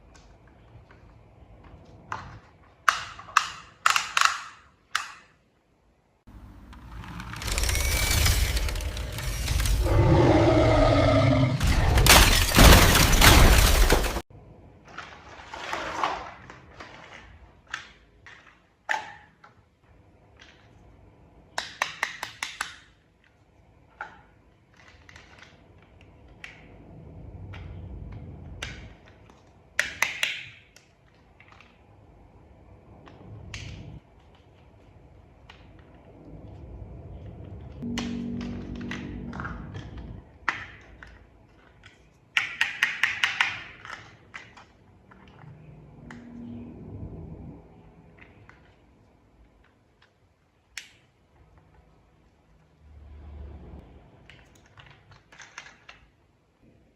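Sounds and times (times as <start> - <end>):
plastic toy parts snapping together: 2.8 - 5.4, 21.6 - 23.0, 29.8 - 31.7, 41.8 - 44.7.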